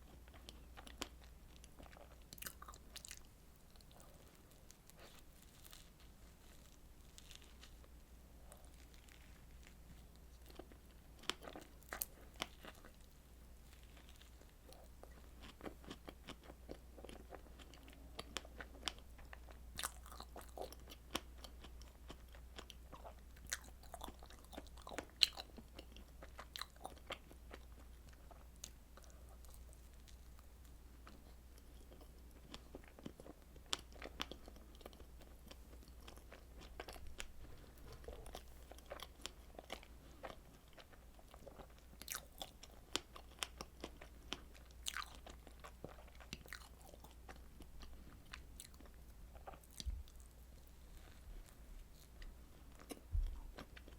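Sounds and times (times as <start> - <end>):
crunchy chewing: 0.0 - 53.9.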